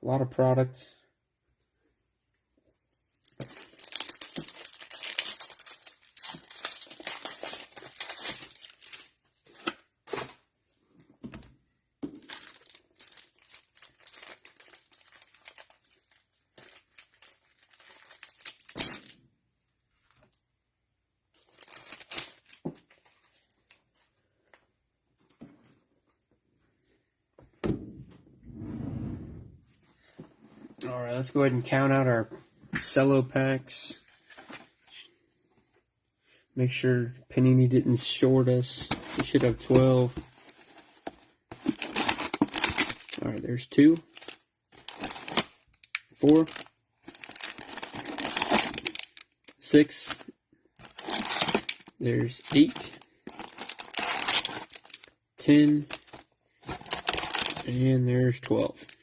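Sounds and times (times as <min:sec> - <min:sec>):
plastic wrapping crinkling: 0:03.2 - 0:09.7, 0:12.1 - 0:19.1, 0:21.3 - 0:24.0, 0:38.9 - 0:43.2, 0:44.1 - 0:57.8.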